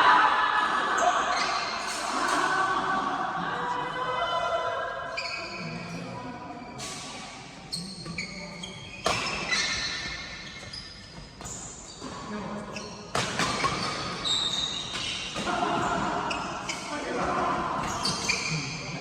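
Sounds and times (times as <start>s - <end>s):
court shoes squeaking: 0.9s - 2.2s, 5.1s - 19.0s
racket hitting shuttlecock: 13.1s - 14.2s.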